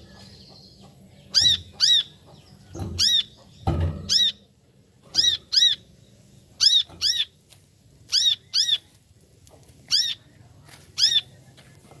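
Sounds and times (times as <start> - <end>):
sunbird calling: 5.1 - 7.4, 8.1 - 9.0, 9.8 - 10.3.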